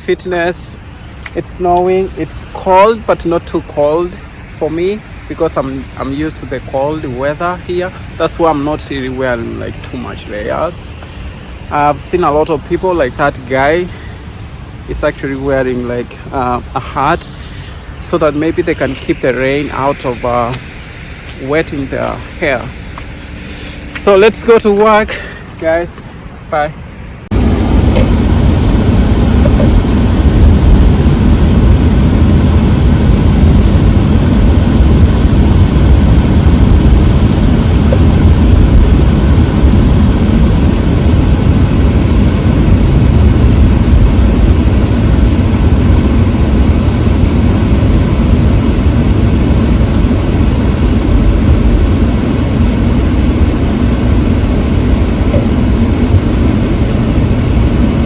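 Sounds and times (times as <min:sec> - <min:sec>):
car driving roar: 0:16.0 - 0:58.0.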